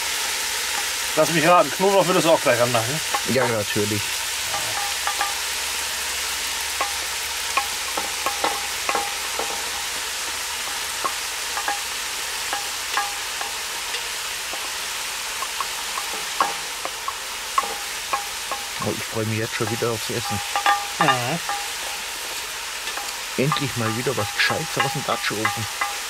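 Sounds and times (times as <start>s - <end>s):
meat and onions sizzling: 0.0s - 26.0s
wooden spatula tapping and scraping: 3.0s - 3.7s, 4.5s - 5.4s, 7.6s - 9.9s, 10.6s - 11.9s, 12.5s - 26.0s.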